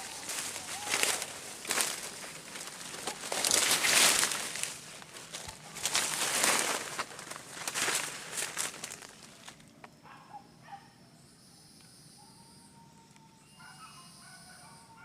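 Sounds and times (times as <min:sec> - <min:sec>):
rustling through dense vegetation: 0:00.0 - 0:09.8
faint distant calls: 0:00.0 - 0:15.0
high insect drone: 0:00.0 - 0:15.0.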